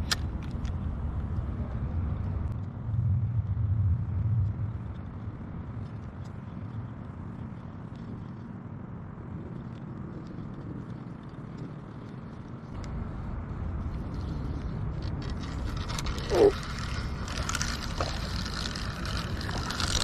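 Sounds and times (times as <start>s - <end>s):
low rumbling background noise: 0.0s - 20.0s
faint ticks: 4.4s - 13.0s.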